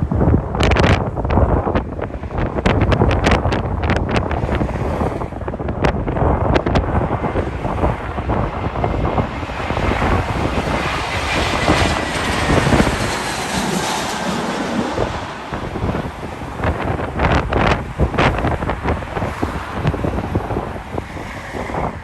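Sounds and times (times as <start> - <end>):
jet airliner passing: 0.0 - 22.0
wind buffeting microphone: 0.0 - 22.0.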